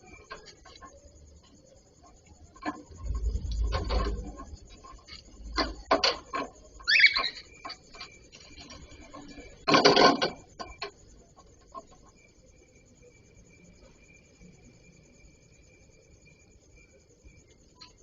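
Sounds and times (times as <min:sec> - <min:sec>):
birds knocking and scraping in cage: 0:00.0 - 0:12.2
rustling and clatter: 0:00.0 - 0:12.3
bird chirp: 0:06.7 - 0:09.6.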